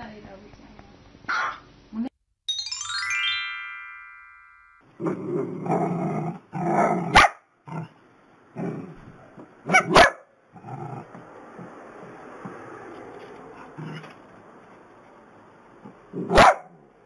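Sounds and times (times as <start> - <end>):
bright chime: 2.5 - 4.9
dogs barking and growling: 5.0 - 12.2, 13.5 - 14.2, 15.8 - 16.9
dogs yapping: 9.6 - 10.3, 16.2 - 16.7.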